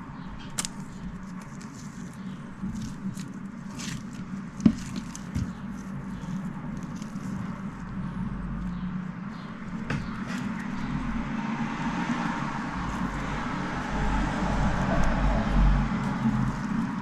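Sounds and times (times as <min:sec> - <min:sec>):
steady low hum: 0:00.0 - 0:17.0
slime squishing: 0:00.3 - 0:08.8.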